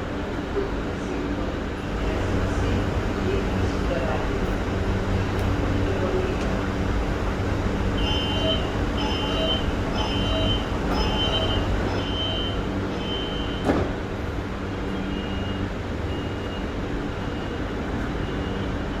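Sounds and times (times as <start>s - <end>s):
electric train hum: 0.0s - 19.0s
high electronic beeps: 8.0s - 13.6s.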